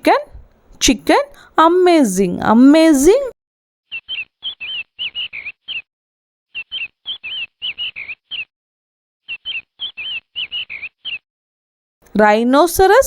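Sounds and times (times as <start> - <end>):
chicks peeping: 3.9 - 5.8, 6.6 - 8.5, 9.3 - 11.2.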